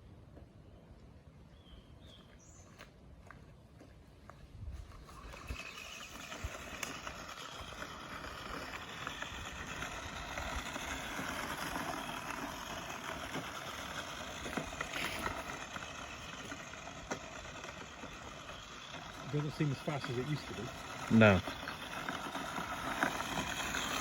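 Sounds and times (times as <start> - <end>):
tyres rolling on rough ground: 3.2 - 24.0
toy car electric motor whine: 4.8 - 24.0.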